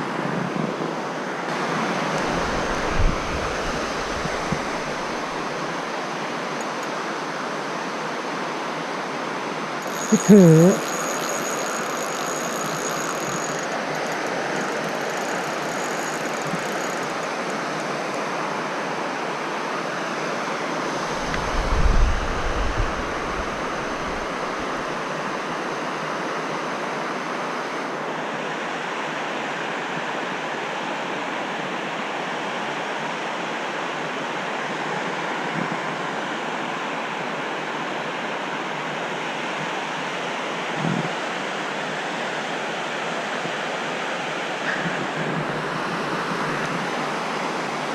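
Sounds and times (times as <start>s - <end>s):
wind buffeting microphone: 2.2s - 5.4s.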